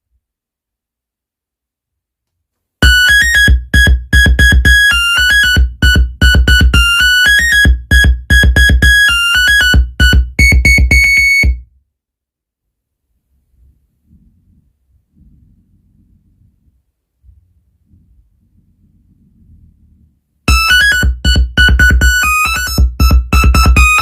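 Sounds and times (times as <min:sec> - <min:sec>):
electronic phone ringtone melody: 0:02.8 - 0:11.6, 0:20.5 - 0:24.0.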